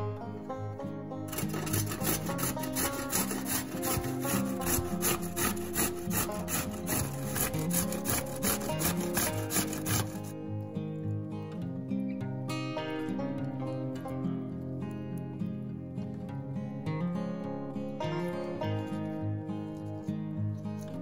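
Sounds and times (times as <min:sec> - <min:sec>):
rhythmic rasping strokes: 0:00.0 - 0:10.6
acoustic music: 0:00.0 - 0:21.0.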